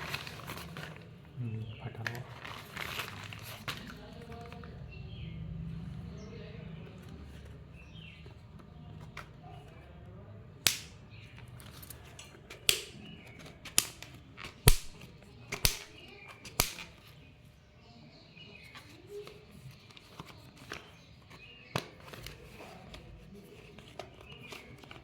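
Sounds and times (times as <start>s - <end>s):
plastic packaging clicks and knocks: 10.7s - 17.0s.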